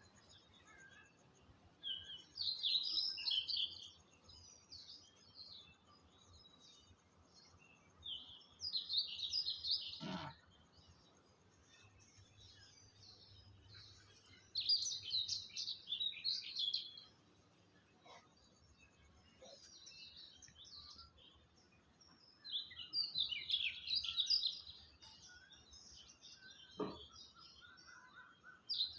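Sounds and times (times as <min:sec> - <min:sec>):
birds chirping and twittering: 0:00.0 - 0:28.9
short knock: 0:26.8 - 0:27.1.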